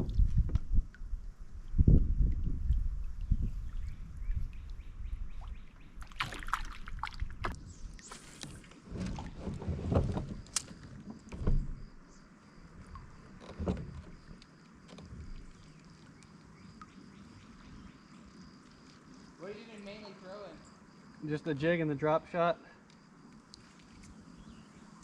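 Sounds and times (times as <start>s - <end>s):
paddle water splashes: 2.6s - 11.9s.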